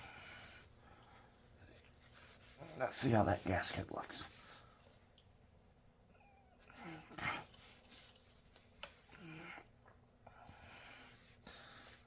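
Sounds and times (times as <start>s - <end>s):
rubbing and handling noises: 0.6s - 5.2s, 7.1s - 9.2s, 10.6s - 12.0s.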